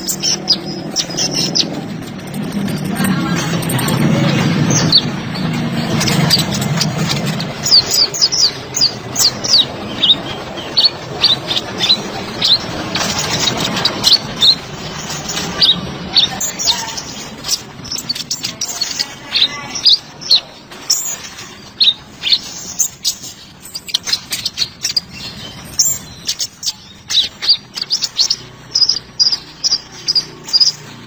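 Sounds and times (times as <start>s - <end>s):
low rumbling background noise: 0.0s - 31.0s.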